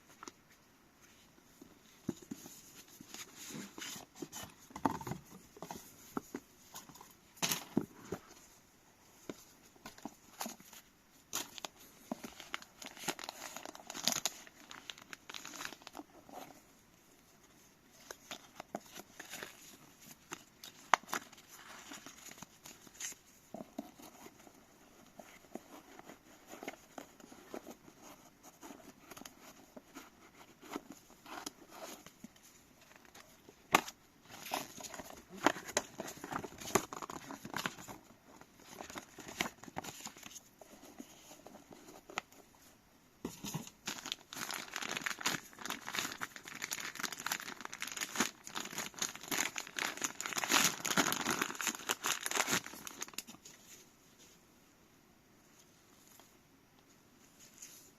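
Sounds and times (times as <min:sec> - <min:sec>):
packaging crinkling and tearing: 0:11.3 - 0:16.0, 0:43.8 - 0:53.3.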